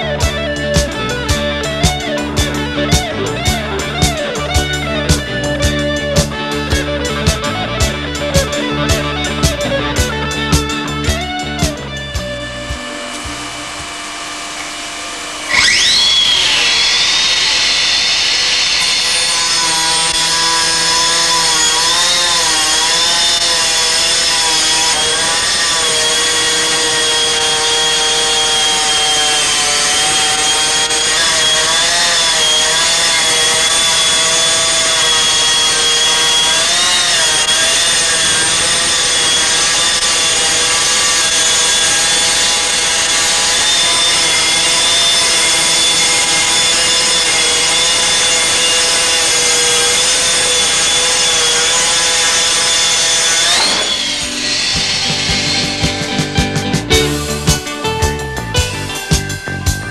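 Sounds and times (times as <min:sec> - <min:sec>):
diamond disc cutting stone: 0:12.9 - 0:56.2.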